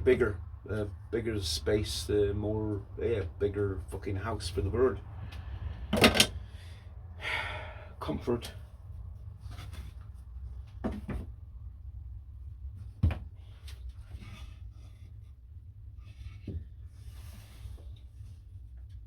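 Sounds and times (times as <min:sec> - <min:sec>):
steady low hum: 0:00.0 - 0:19.0
knocks and clicks of handling: 0:10.6 - 0:11.4.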